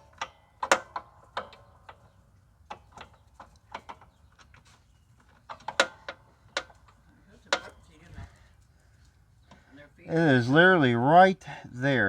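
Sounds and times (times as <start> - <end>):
metallic clicks and knocks: 0.0 - 7.9.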